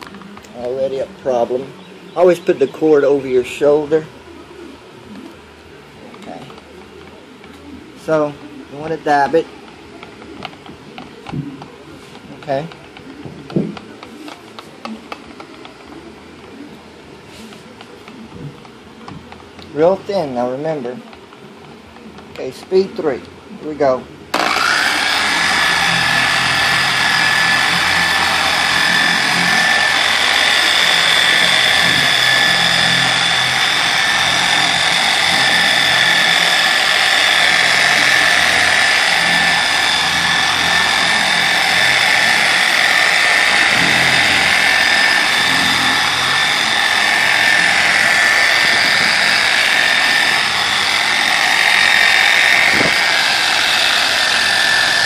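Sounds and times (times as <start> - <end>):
polisher whining: 6.0 - 16.6, 24.3 - 55.0.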